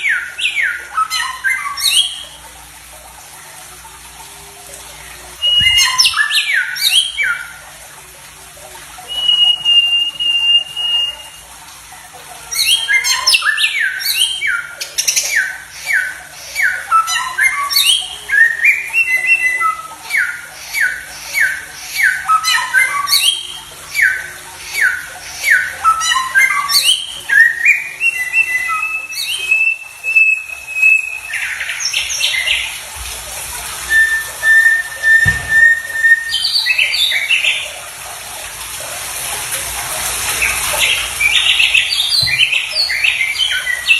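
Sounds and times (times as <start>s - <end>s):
songbird singing: 5.4s - 7.6s, 12.6s - 32.8s, 33.9s - 37.7s, 40.4s - 43.9s.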